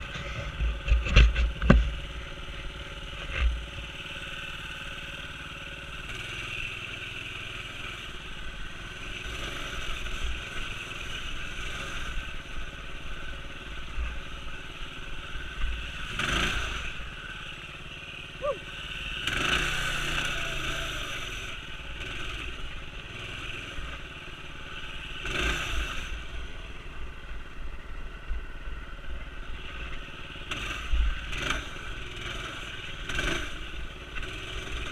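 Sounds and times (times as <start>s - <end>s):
clatter and low thumps: 0.0s - 3.8s
small engine revving: 0.0s - 27.6s, 28.7s - 34.9s.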